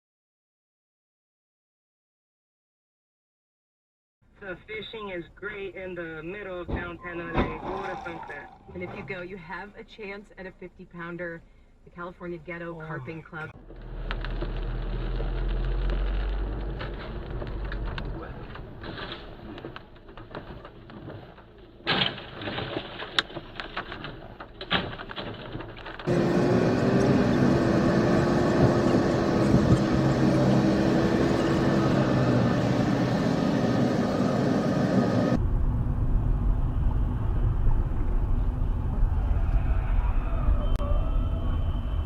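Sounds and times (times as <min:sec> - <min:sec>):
road and engine noise: 0:04.2 - 0:42.0
low rumble: 0:13.6 - 0:20.9, 0:26.9 - 0:42.0.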